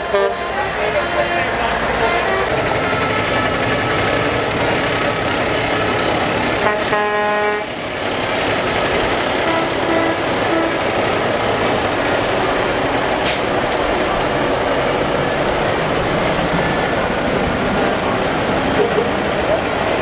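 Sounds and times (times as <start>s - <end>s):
truck horn blast: 0.0s - 1.4s, 2.0s - 7.8s, 9.3s - 13.8s
truck engines passing: 0.0s - 20.0s.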